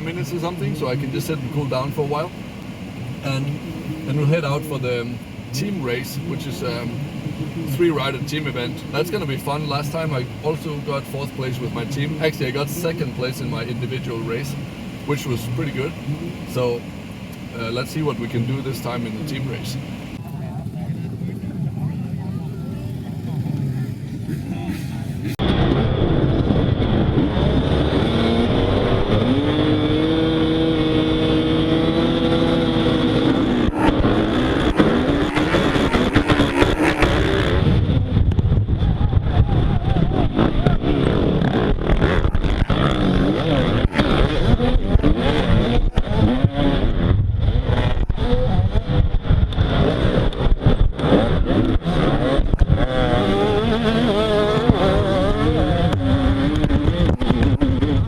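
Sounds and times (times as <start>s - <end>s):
motorbike engine revving: 22.8s - 58.0s.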